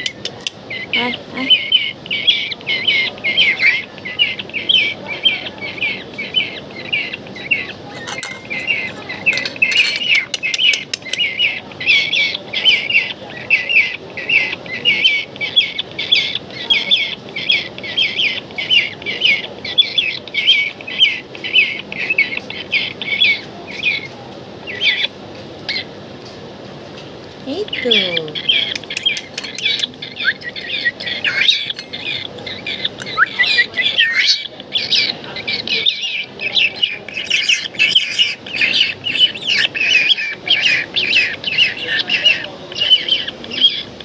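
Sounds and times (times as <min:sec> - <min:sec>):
bird chick begging calls: 0:00.0 - 0:25.1, 0:27.6 - 0:44.0
sharp clicks: 0:28.6 - 0:30.0.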